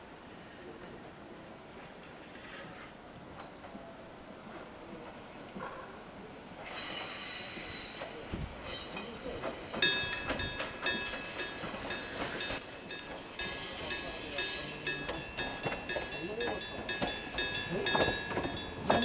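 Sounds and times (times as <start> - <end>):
train wheels squealing: 6.6 - 12.6, 13.2 - 19.0
low knocks from train wheels: 8.3 - 19.0.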